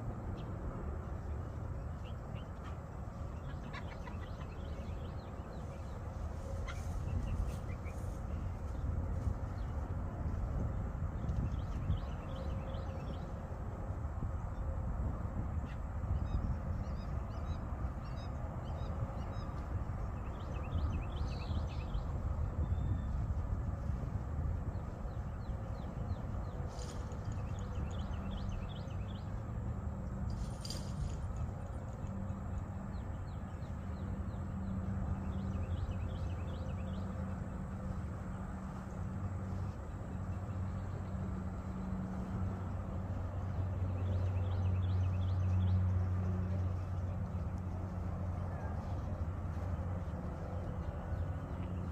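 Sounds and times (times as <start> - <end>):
birds chirping: 0.4 - 13.5, 24.6 - 51.9.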